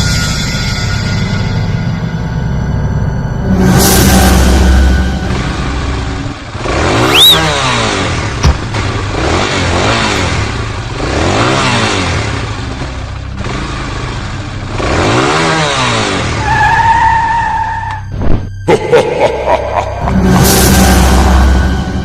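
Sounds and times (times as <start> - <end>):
vehicle engine revving: 3.5 - 18.1, 19.1 - 22.0
tyre squeal: 16.4 - 18.1.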